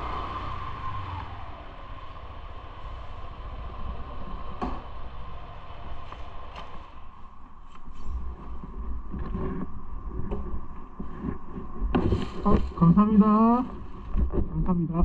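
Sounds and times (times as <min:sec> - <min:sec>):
motorbike engine: 0:00.0 - 0:07.3.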